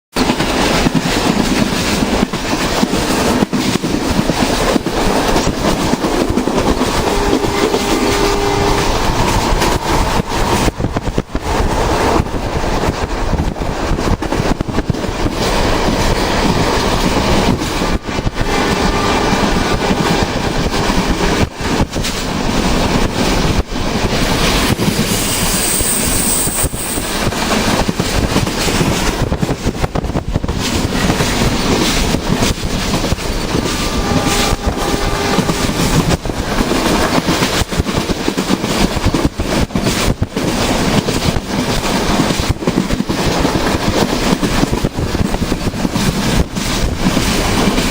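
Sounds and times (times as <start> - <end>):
train wheels rumbling: 0.1 - 47.9
high squeal: 6.3 - 12.8, 24.7 - 27.7, 33.6 - 37.0.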